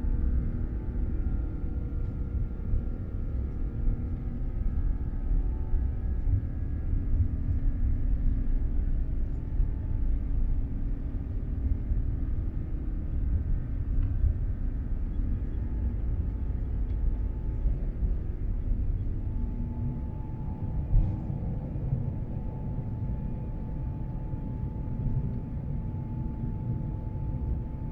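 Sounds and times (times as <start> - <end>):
airplane cabin engine rumble: 0.0 - 27.9
faint whine tones: 0.0 - 27.9.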